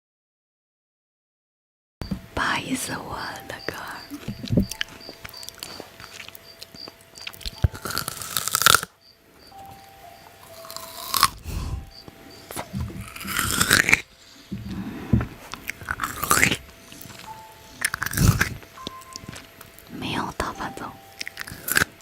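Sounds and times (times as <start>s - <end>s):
chewing: 4.1s - 8.9s, 10.4s - 11.6s, 12.4s - 19.9s, 21.2s - 22.0s
crisp crunchy bites: 5.4s - 8.9s, 10.5s - 11.4s, 12.5s - 14.0s, 15.5s - 18.6s.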